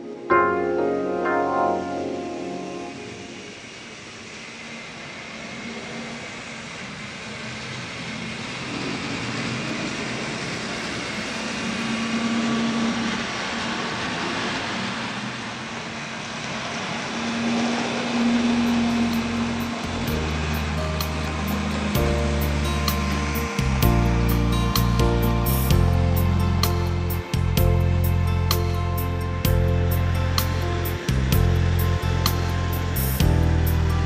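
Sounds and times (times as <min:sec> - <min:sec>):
electric motor hum: 0:16.4 - 0:34.0.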